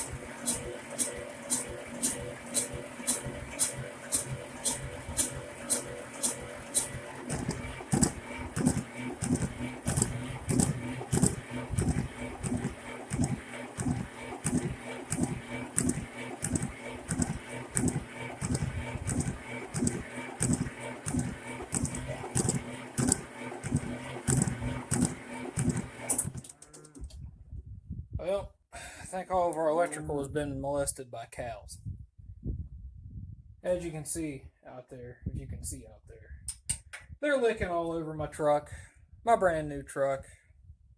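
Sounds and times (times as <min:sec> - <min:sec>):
diesel engine cranking: 0:00.0 - 0:27.1
starter motor hum: 0:00.0 - 0:27.2.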